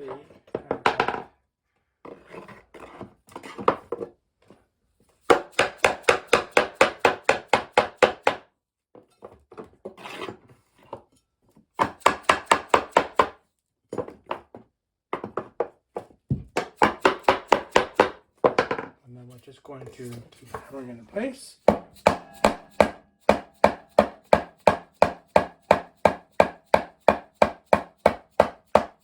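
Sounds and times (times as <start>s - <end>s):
hammer knocking on wood: 15.1s - 18.9s, 21.7s - 29.0s.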